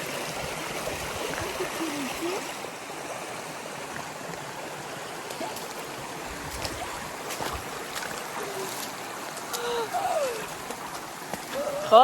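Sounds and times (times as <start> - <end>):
running water hiss: 0.0 - 12.0.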